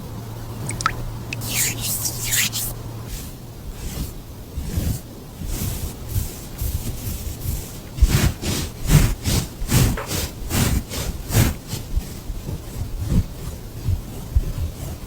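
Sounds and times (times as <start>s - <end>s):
brush strokes through cat fur: 1.3s - 15.0s.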